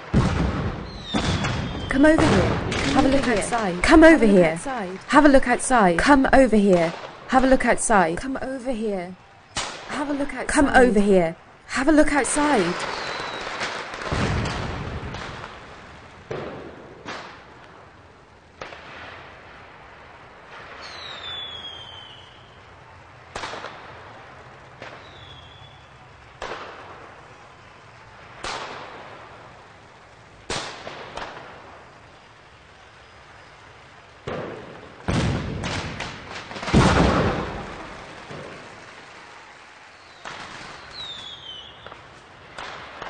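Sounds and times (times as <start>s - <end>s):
sharp bangs with echo: 0.0s - 7.4s, 34.3s - 39.1s.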